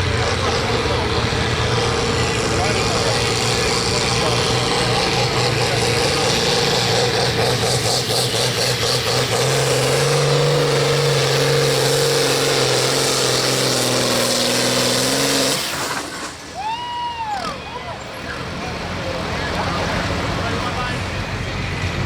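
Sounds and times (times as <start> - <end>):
tractor diesel engine revving: 0.0 - 16.6, 17.3 - 22.0.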